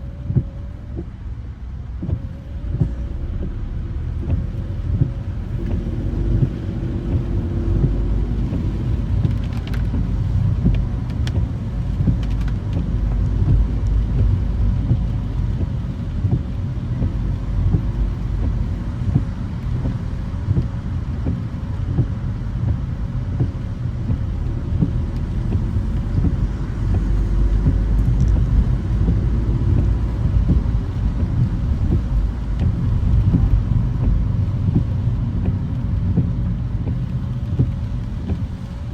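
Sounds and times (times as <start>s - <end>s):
car engine and tyres rumbling: 0.0s - 38.9s.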